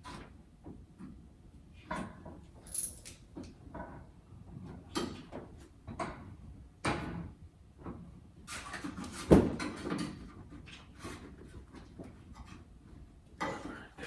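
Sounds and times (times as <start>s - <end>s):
metal tools clinking and rattling: 2.6s - 3.3s.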